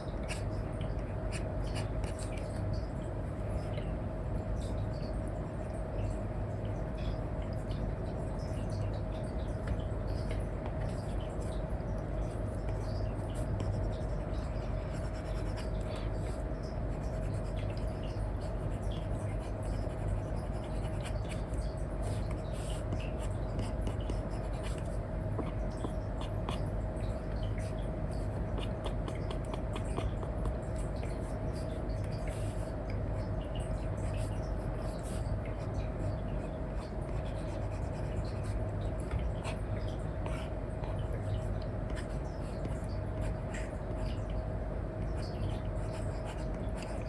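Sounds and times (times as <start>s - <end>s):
steady low hum: 0.0s - 47.0s
stylus scratching and tapping screen: 27.3s - 32.8s, 36.7s - 44.1s.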